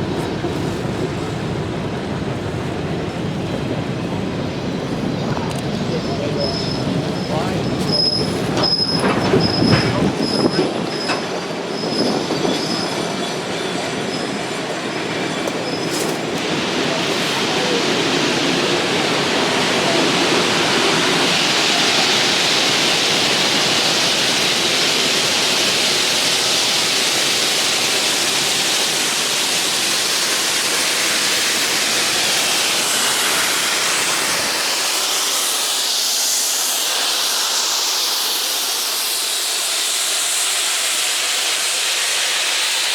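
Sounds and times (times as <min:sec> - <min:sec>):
steam locomotive running by: 0:00.0 - 0:42.9
steam hiss: 0:05.1 - 0:42.9
wheel squeal: 0:05.9 - 0:16.3.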